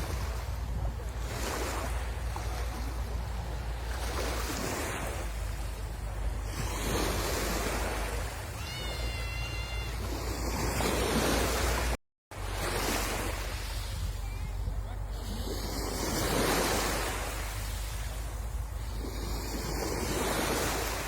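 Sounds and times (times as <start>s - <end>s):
sea waves washing onto shore: 0.0s - 21.0s
wind rumbling on microphone: 0.0s - 21.0s.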